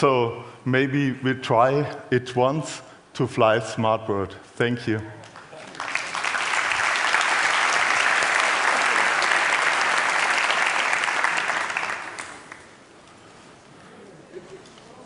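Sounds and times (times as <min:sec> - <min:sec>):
audience applauding: 0:05.2 - 0:12.8.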